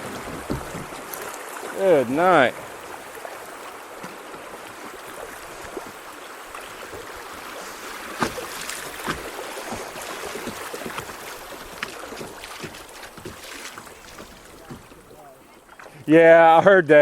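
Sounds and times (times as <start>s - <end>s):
kayak hull knocking on rocks: 0.0s - 1.4s, 6.7s - 16.2s
rushing water: 0.0s - 17.0s.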